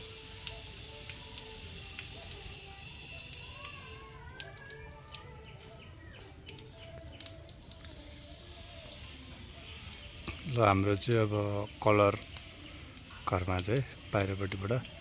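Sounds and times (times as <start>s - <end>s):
birds chirping: 4.6s - 8.0s, 8.9s - 15.0s.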